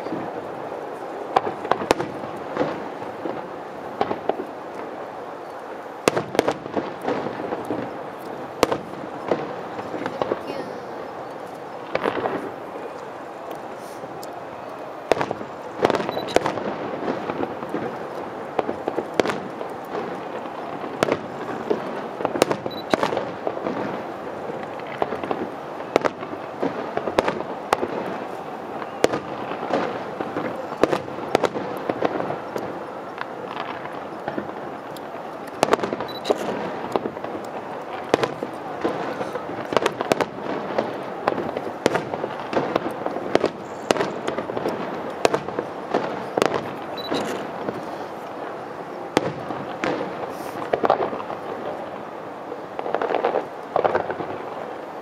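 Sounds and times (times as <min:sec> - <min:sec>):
fireworks crackle and rumble: 0:00.0 - 0:55.0
fireworks shells bursting: 0:15.1 - 0:48.4.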